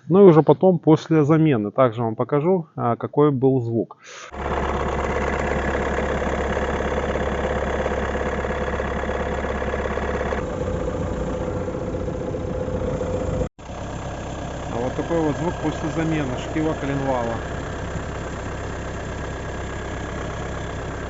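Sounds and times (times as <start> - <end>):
diesel engine idling: 4.3 - 21.0
noise from under the bonnet: 4.4 - 21.0.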